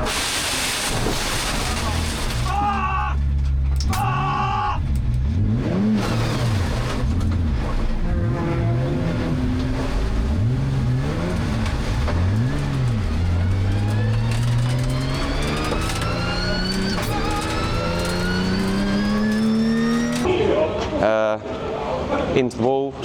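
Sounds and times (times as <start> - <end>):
race car engine revving: 3.2 - 20.3.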